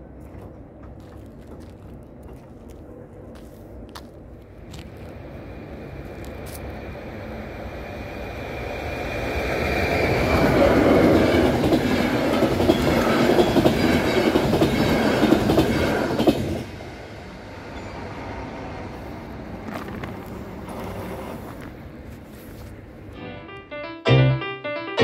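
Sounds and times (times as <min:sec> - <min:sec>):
train wheels rushing on rails: 0:00.0 - 0:23.1
piano-like music: 0:23.2 - 0:25.0.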